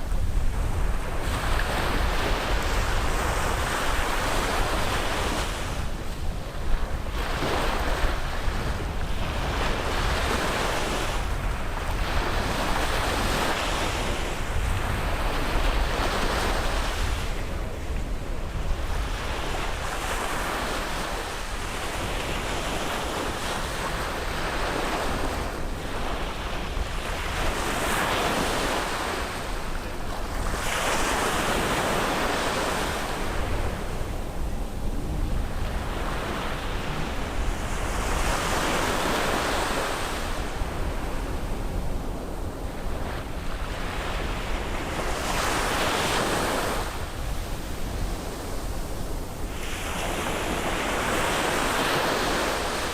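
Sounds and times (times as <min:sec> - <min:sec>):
waves breaking on a beach: 0:00.0 - 0:52.9
low rumble: 0:33.4 - 0:38.1.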